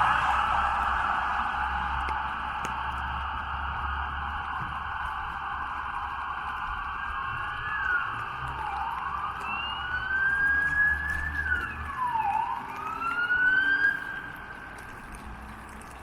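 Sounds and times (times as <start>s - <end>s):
siren wailing: 0.0s - 15.0s
rain hissing: 0.0s - 16.0s.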